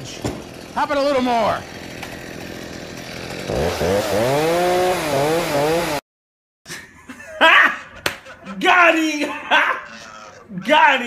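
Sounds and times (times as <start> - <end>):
chainsaw revving: 0.0 - 6.0.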